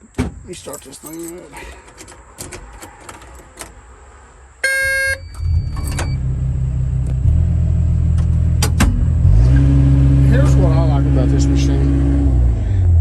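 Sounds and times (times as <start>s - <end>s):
short electronic beep: 4.6s - 6.2s
diesel engine starting and idling: 4.7s - 13.0s.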